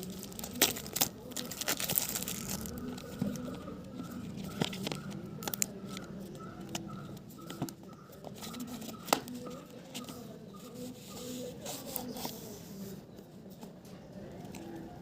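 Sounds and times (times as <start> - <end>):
packaging being torn: 0.0 - 3.5.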